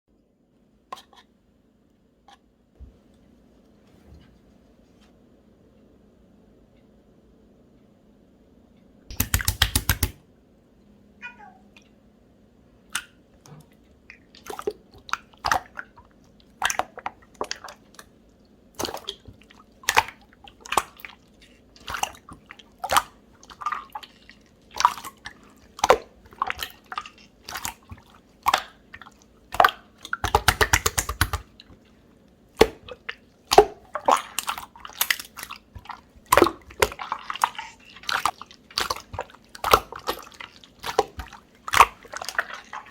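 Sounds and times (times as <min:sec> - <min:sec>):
slime rapid crackling: 0:09.1 - 0:10.2
slime wet clicks and pops: 0:09.1 - 0:10.2, 0:29.6 - 0:31.4.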